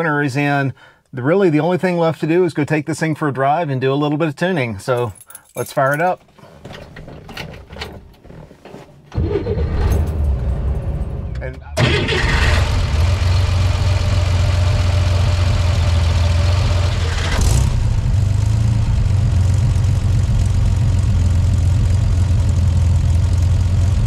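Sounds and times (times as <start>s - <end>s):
car engine idling: 11.0s - 24.0s.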